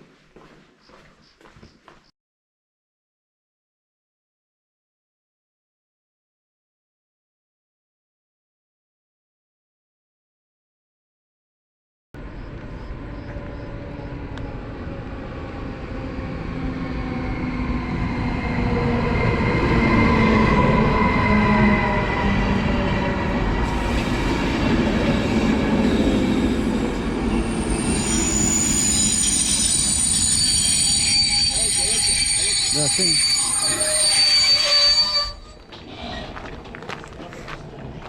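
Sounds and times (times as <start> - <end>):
train rumbling: 12.2 - 38.0
metallic wheel squeal: 23.6 - 36.3.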